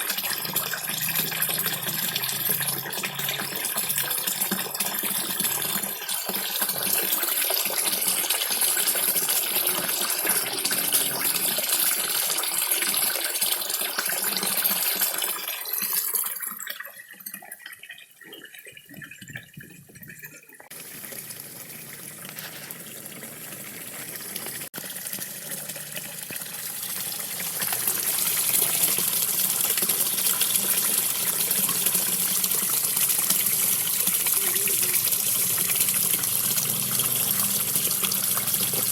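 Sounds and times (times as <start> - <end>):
small waterfall splashing: 20.7 - 38.9.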